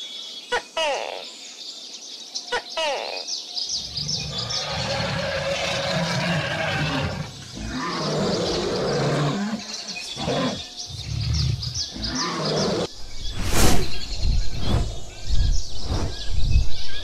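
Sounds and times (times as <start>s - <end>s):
birds chirping: 0.0s - 17.0s
lion roaring: 3.9s - 12.9s.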